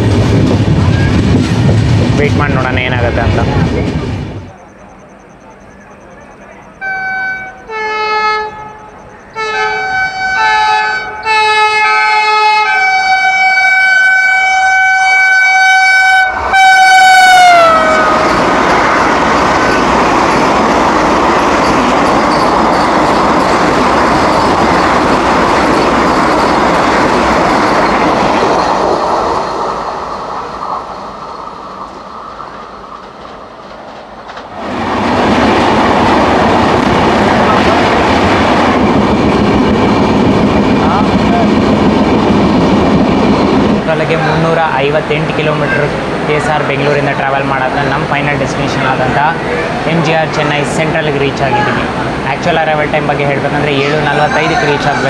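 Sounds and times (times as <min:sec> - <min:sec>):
passing train rush and rumble: 0:00.0 - 0:55.0
train horn blasts: 0:06.8 - 0:18.2.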